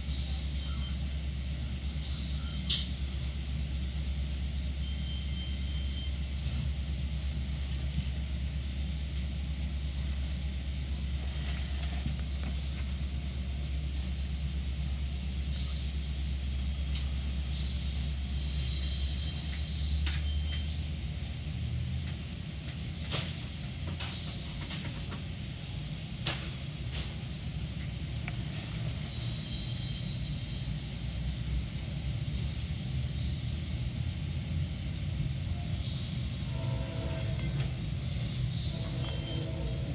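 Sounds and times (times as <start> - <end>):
train rumbling on rails: 0.0 - 39.9.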